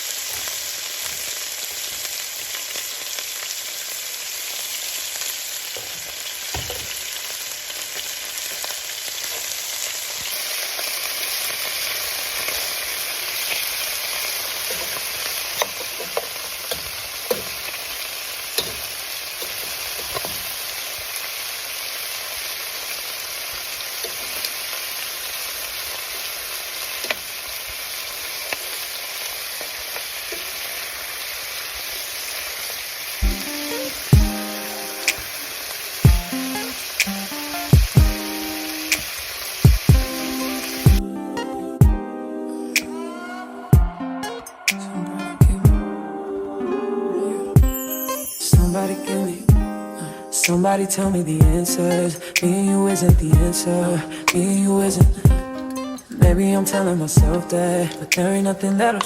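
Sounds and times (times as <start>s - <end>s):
food sizzling in a frying pan: 0.0s - 41.9s, 47.4s - 59.0s
utensil clicking against pan: 18.6s - 20.4s.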